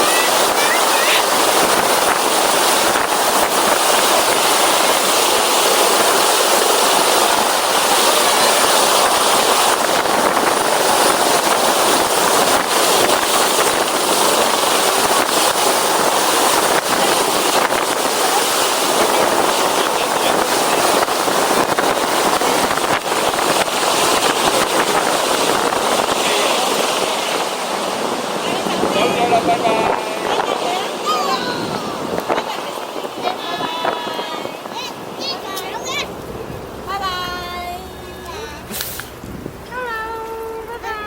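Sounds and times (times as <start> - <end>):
helicopter rotor rushing: 0.0 - 38.6.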